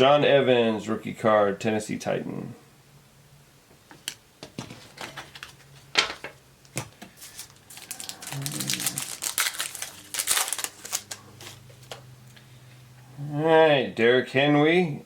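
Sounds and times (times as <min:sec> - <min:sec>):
cards rustling and sliding: 0:06.7 - 0:12.0.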